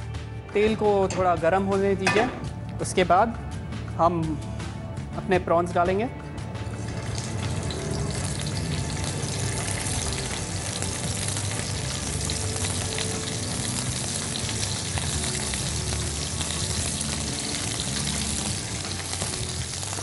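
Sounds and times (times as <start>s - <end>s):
prawns sizzling in oil: 6.6s - 20.0s.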